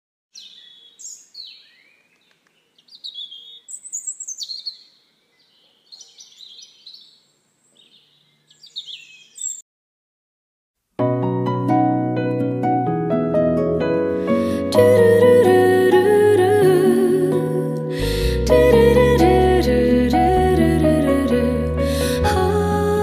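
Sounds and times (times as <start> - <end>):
birds chirping and trilling: 0.3 - 9.6.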